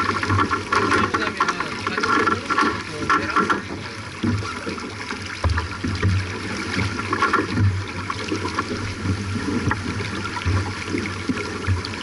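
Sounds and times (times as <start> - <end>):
water rushing along boat hull: 0.0 - 12.0
small knocks: 5.4 - 7.8.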